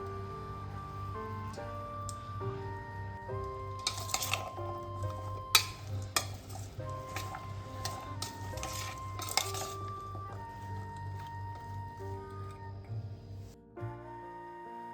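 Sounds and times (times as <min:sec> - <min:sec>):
soft background music: 0:00.0 - 0:14.9
spoon stirring in a bowl: 0:03.7 - 0:11.8
spoon clinking against bowl: 0:03.8 - 0:10.3.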